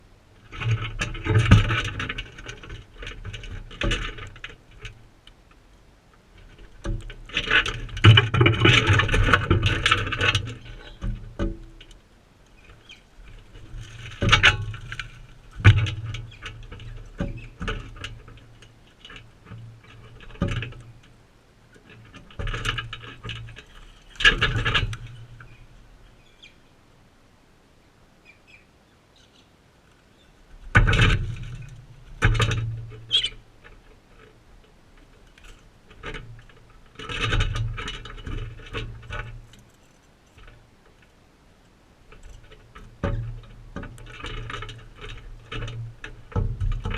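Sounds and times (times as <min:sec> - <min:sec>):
bird chirps: 0:25.5 - 0:26.7, 0:28.2 - 0:30.4, 0:33.1 - 0:33.4.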